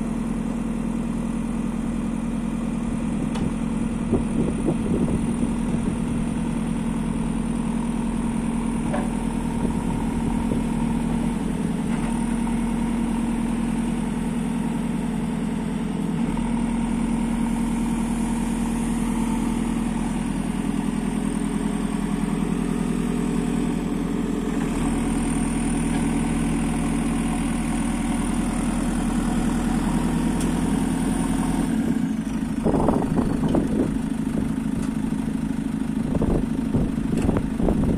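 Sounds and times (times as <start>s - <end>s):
diesel engine running: 0.0s - 37.9s
engine surges and knocks: 2.9s - 6.8s, 8.2s - 12.5s, 25.7s - 26.3s, 29.8s - 37.9s.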